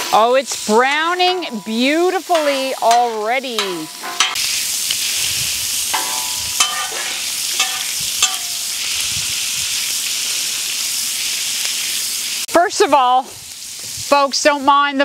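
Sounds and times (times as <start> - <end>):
pork fat sizzling on a griddle: 0.0 - 15.0
metal spatula scraping a griddle: 1.2 - 9.1.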